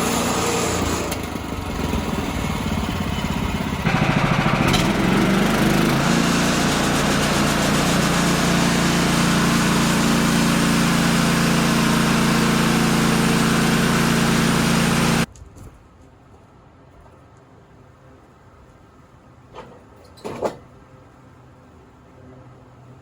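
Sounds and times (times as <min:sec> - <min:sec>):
small gasoline engine running: 0:00.0 - 0:15.3.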